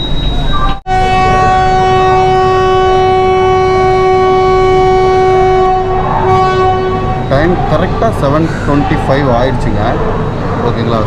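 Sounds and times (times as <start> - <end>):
locomotive horn blast: 0.9 - 9.3.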